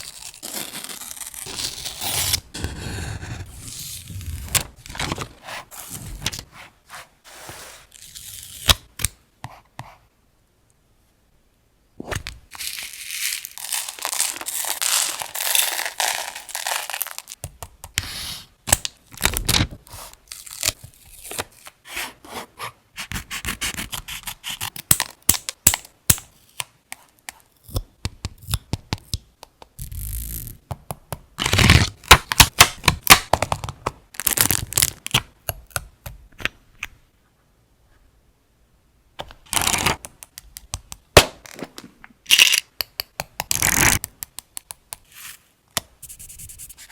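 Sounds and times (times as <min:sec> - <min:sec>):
sharp clicks and taps: 0:42.7 - 0:45.0.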